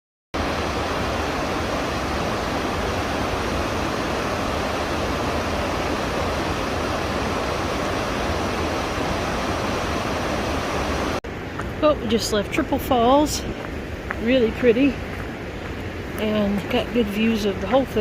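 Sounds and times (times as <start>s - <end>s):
waterfall rushing: 0.4s - 11.4s.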